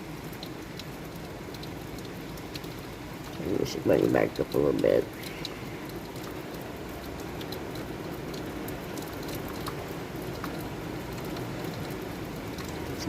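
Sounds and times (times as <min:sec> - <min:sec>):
heavy rain hissing: 0:00.0 - 0:13.0
rain drops ticking: 0:00.0 - 0:13.0.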